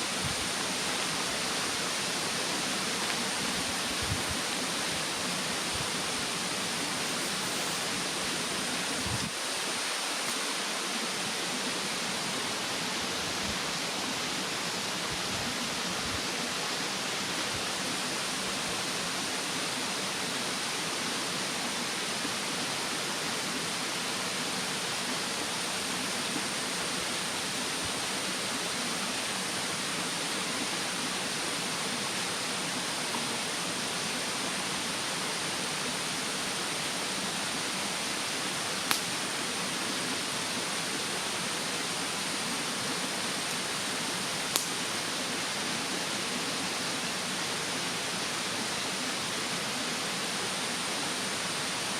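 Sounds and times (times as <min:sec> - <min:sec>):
mountain stream rushing: 0:00.0 - 0:51.9
firewood crackle: 0:38.9 - 0:39.1, 0:44.5 - 0:44.7.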